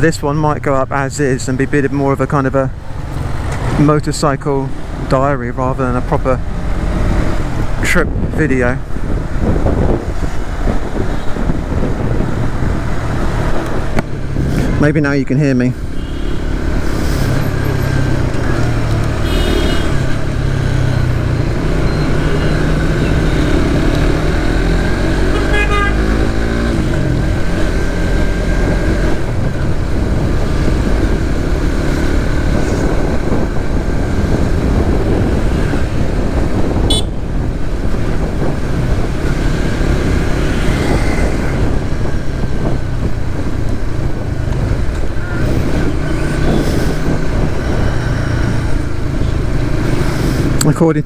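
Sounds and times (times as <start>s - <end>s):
road noise: 0.0s - 51.0s
motorcycle engine running: 15.7s - 50.6s
vehicle horns tooting: 15.8s - 16.6s, 19.1s - 20.2s, 25.2s - 26.6s, 36.8s - 37.3s.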